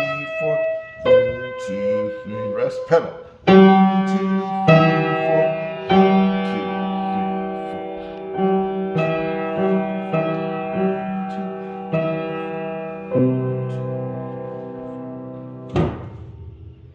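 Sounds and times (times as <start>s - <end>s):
piano melody: 0.0s - 16.9s.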